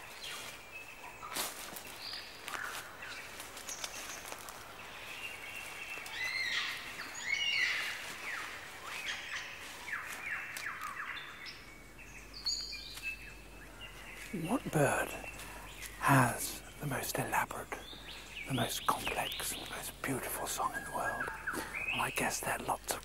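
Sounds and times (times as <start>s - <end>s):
birds whistling and chirping: 5.2s - 22.5s.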